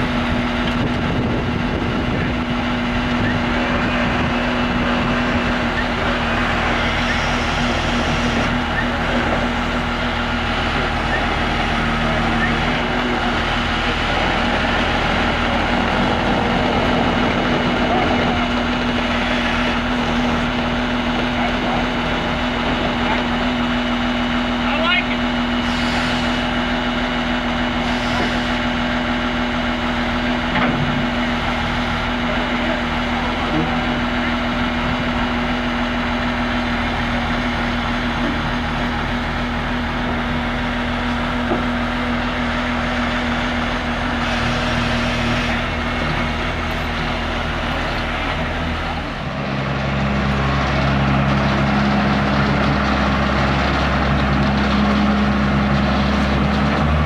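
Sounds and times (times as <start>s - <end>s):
loader diesel engine running: 0.0s - 57.0s.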